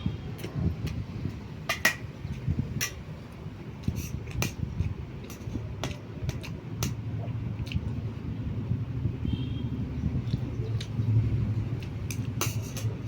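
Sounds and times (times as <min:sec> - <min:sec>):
chewing: 0:10.2 - 0:11.0.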